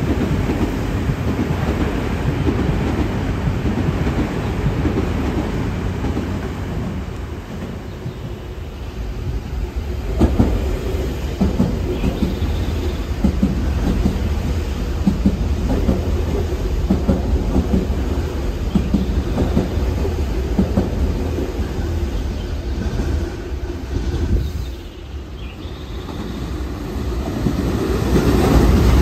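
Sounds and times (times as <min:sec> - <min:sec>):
electric train rumbling past: 0:00.0 - 0:29.0
wheels clacking over rail joints: 0:10.0 - 0:21.7.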